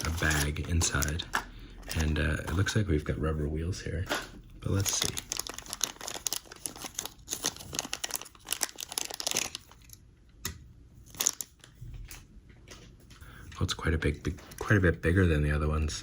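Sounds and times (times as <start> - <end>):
plastic bag crinkling: 0.0 - 2.3, 4.6 - 10.0, 11.0 - 11.8.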